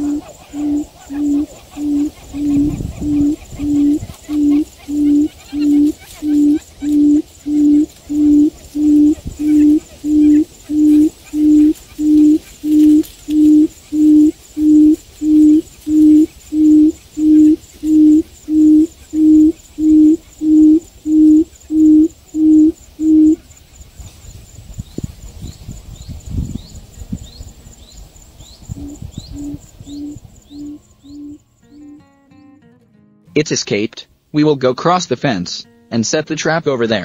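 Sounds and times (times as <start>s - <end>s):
quail hooting: 0.0s - 23.5s, 28.7s - 32.1s.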